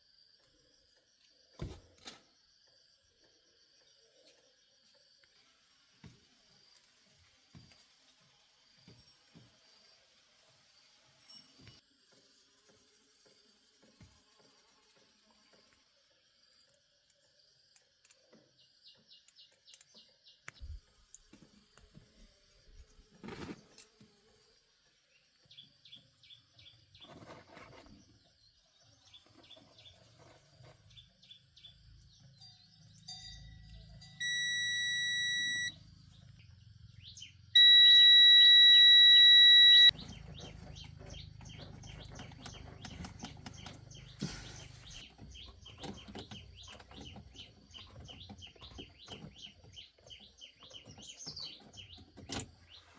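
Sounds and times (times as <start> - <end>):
bird chirps: 30.8 - 52.9
high-pitched electronic beeps: 34.1 - 35.8, 37.6 - 39.9.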